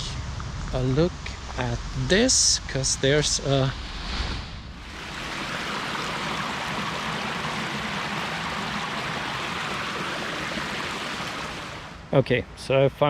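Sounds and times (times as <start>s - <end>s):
water rushing down fish ladder: 4.8s - 12.0s.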